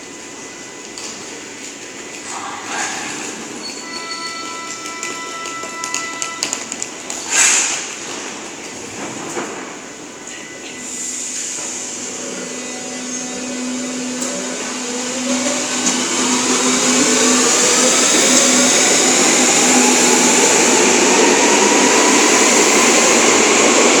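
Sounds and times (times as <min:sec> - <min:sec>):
train running noise rushing: 0:10.8 - 0:24.0
train traction motors whining: 0:10.8 - 0:24.0.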